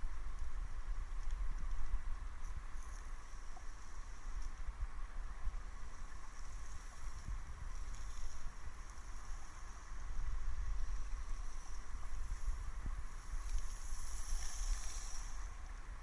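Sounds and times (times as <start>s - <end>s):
thin high hiss: 10.8s - 15.7s.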